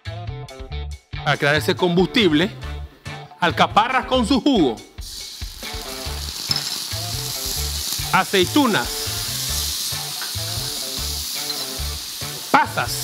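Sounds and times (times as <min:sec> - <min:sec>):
food sizzling in hot oil: 0:05.0 - 0:13.0.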